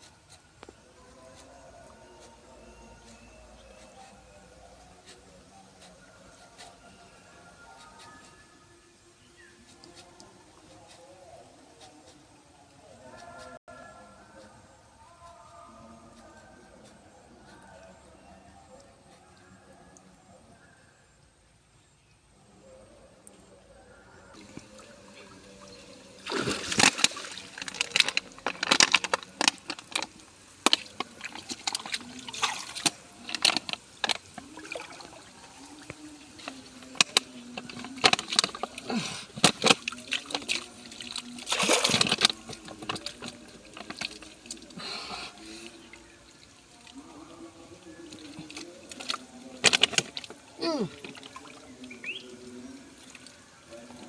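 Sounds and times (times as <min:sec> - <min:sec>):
water splashing and sloshing: 0:24.4 - 0:44.8, 0:45.4 - 0:54.0.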